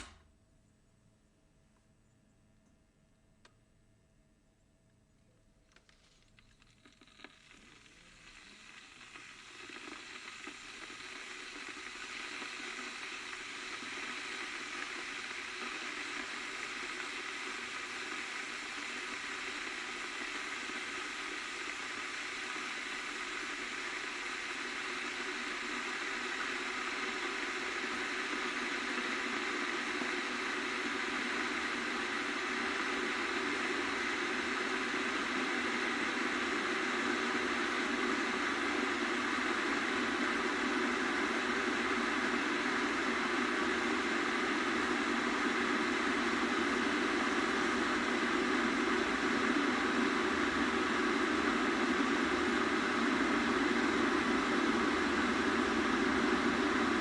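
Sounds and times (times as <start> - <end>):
kettle water hissing: 0.0 - 0.2, 5.8 - 57.0.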